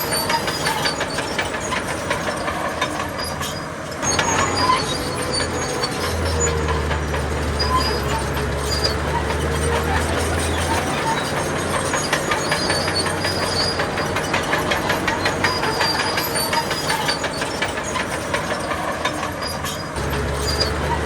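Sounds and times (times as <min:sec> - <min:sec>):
bulldozer track clatter: 0:00.0 - 0:21.0
low engine drone: 0:20.0 - 0:21.0.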